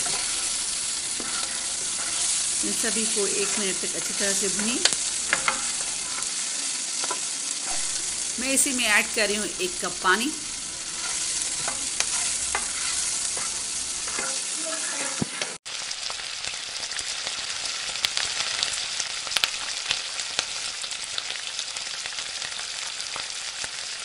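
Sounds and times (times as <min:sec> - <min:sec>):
spoon stirring in pot: 0:00.0 - 0:06.2, 0:10.4 - 0:14.4
masala sizzling in hot oil: 0:00.0 - 0:24.0.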